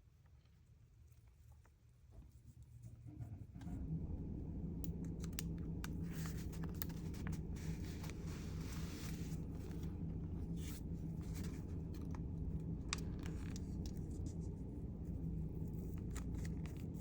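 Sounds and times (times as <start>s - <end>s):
steady low hum: 2.3s - 17.0s
paper rustling and scraping: 5.9s - 17.0s.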